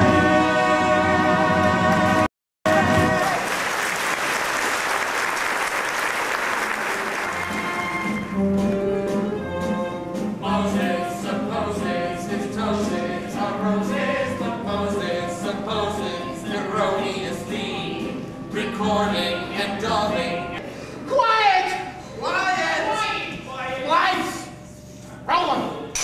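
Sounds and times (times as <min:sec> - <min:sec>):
ensemble singers: 0:00.0 - 0:03.5, 0:08.8 - 0:20.7
theatre orchestra: 0:00.0 - 0:20.6
audience applause: 0:02.7 - 0:08.0.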